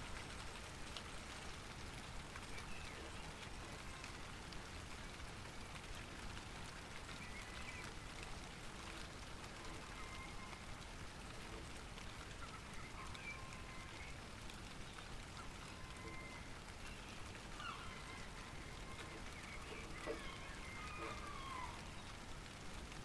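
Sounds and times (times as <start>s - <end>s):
light rain falling: 0.0s - 23.0s
faint short bird calls: 15.0s - 22.2s.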